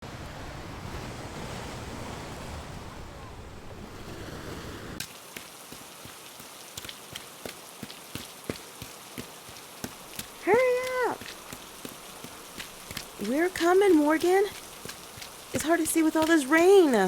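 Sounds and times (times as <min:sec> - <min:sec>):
wind: 0:00.0 - 0:17.0
heavy rain: 0:05.0 - 0:17.0.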